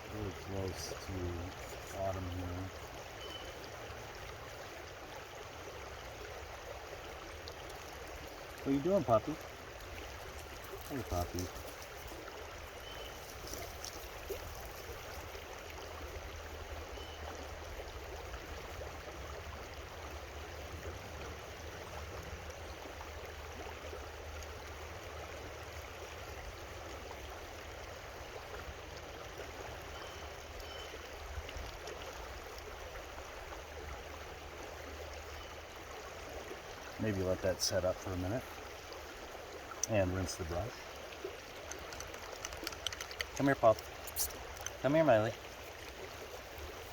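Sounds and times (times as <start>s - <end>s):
creek water flowing: 0.0s - 46.9s.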